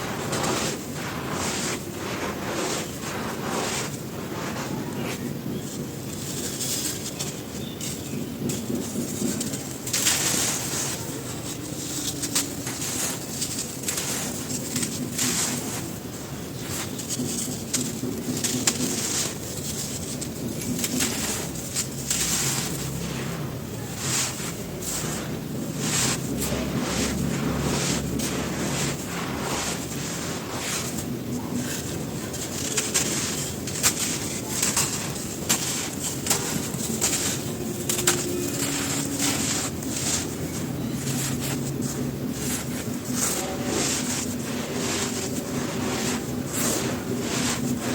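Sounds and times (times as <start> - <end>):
dry cylinders crumbling and crunching: 0.0 - 47.9.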